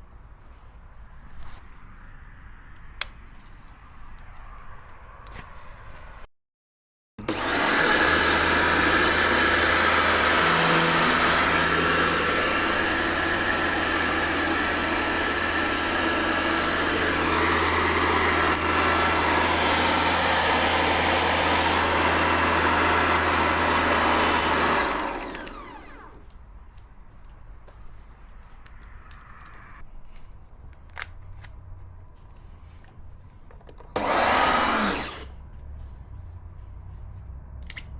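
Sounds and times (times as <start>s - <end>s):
pressure washer running: 7.2s - 26.3s, 34.0s - 35.3s.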